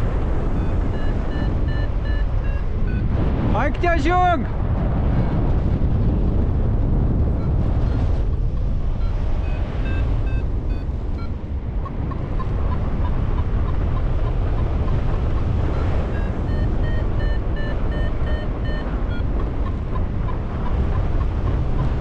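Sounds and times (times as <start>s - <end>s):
wind buffeting microphone: 0.0s - 22.0s
short electronic beeps: 0.6s - 3.1s, 9.0s - 11.4s, 16.1s - 19.6s.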